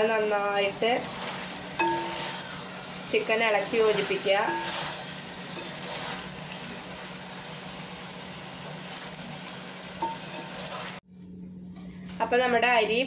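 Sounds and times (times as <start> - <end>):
food sizzling in a pot: 0.0 - 11.0
ladle stirring: 0.8 - 7.0, 10.0 - 11.0.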